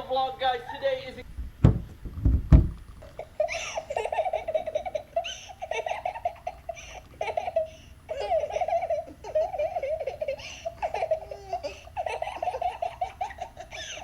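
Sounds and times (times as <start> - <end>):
baby laughing through phone speaker: 3.0 - 14.0.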